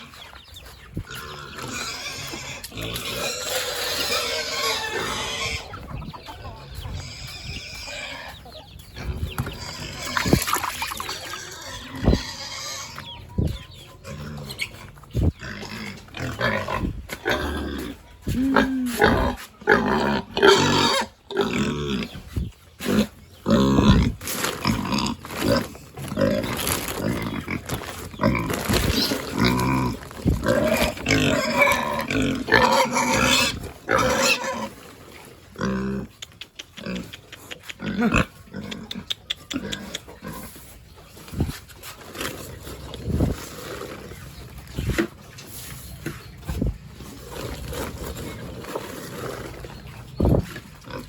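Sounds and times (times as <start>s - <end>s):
pigs squealing: 1.0s - 13.2s, 14.0s - 22.2s, 22.8s - 34.9s, 35.5s - 40.6s.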